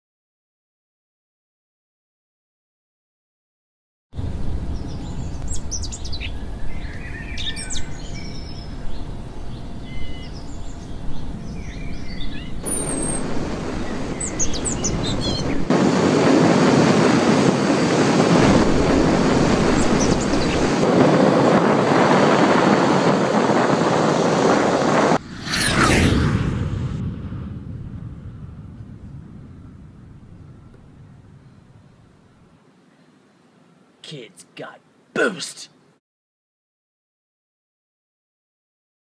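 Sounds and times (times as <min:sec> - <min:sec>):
birds chirping: 0:04.8 - 0:15.7, 0:19.5 - 0:20.8, 0:29.0 - 0:35.8
low outdoor rumble: 0:07.8 - 0:23.4, 0:24.3 - 0:32.6
steady rushing noise: 0:12.6 - 0:32.5.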